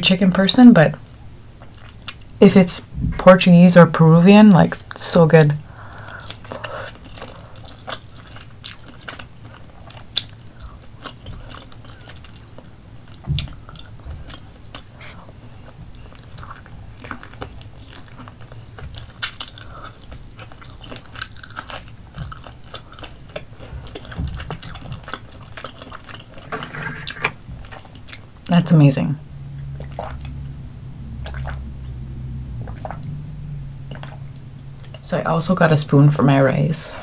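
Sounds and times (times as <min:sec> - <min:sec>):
person chewing meat: 0:01.5 - 0:02.3, 0:05.6 - 0:28.4, 0:29.5 - 0:30.5, 0:31.1 - 0:32.0, 0:32.6 - 0:33.2, 0:33.8 - 0:35.0.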